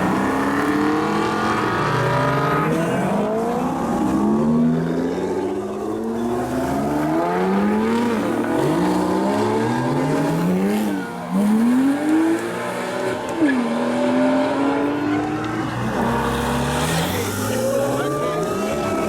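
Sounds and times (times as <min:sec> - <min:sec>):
car engines accelerating hard: 0:00.0 - 0:19.0.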